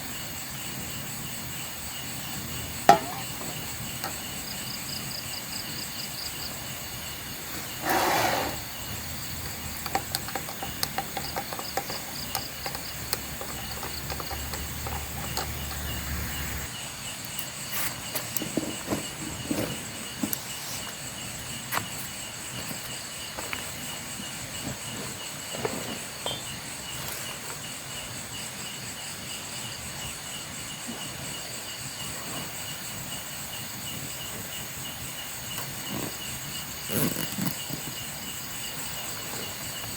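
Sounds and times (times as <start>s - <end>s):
crickets chirring: 0.0s - 39.9s
small clicks and knocks: 9.4s - 16.7s.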